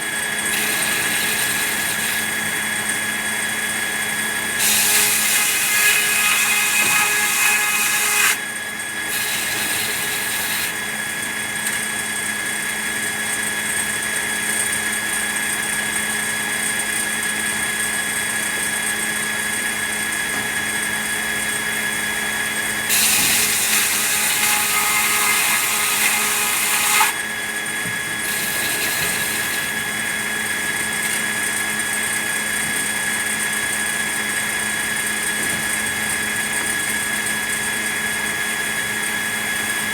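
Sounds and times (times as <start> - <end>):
sawmill saw running: 0.0 - 13.8, 21.3 - 35.3
saw blade hissing through wood: 4.6 - 8.4, 9.1 - 10.8, 22.9 - 27.2, 28.2 - 29.8.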